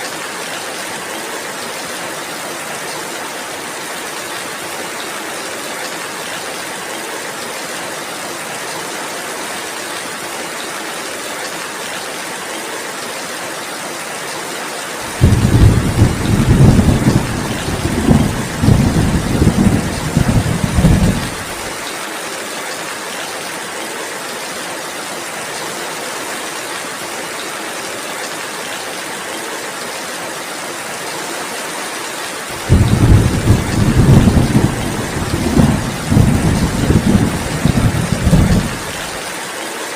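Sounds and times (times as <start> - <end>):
rain falling: 0.0 - 39.9
rolling thunder: 15.1 - 21.7, 32.6 - 39.2.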